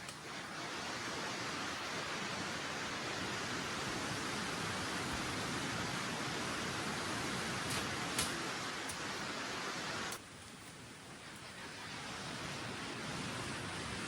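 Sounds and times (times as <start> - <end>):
heavy rain falling: 0.0 - 10.3.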